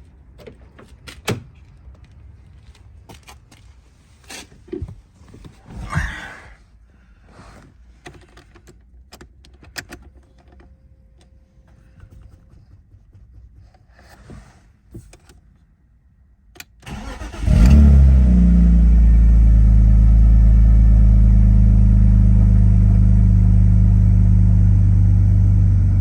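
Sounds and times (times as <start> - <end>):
low rumble: 18.9 - 26.0.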